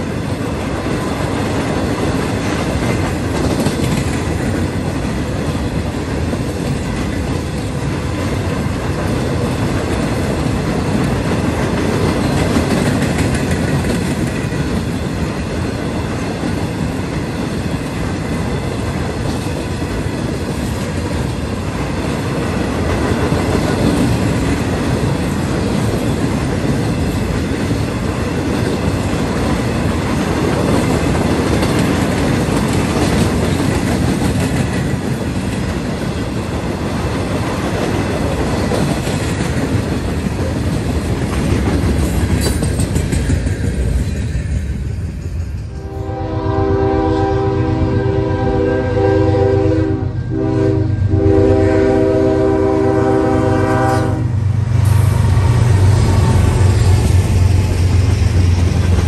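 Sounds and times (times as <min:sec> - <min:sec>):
train wheels rumbling on rails: 0:00.0 - 0:59.0
rhythmic clickety-clack: 0:01.4 - 0:07.8, 0:08.6 - 0:21.5, 0:22.8 - 0:45.7.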